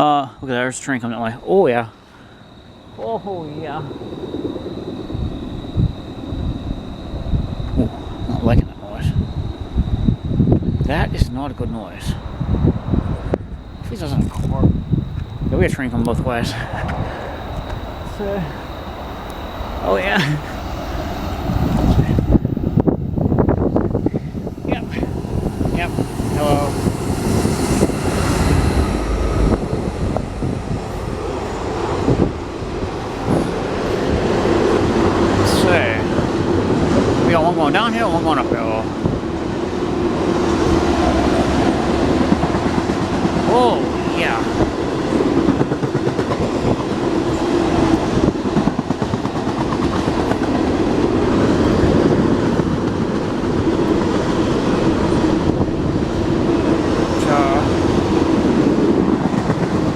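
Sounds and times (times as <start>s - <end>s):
train wheels rumbling on rail: 1.1s - 59.9s
clickety-clack over rail joints: 31.2s - 59.9s.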